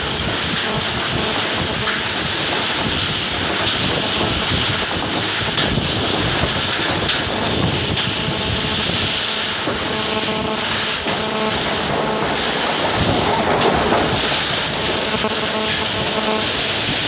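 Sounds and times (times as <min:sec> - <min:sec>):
hail hits: 0:00.0 - 0:17.0
heavy rain and wind: 0:00.0 - 0:17.0
faint hum: 0:07.4 - 0:12.6, 0:14.6 - 0:16.8.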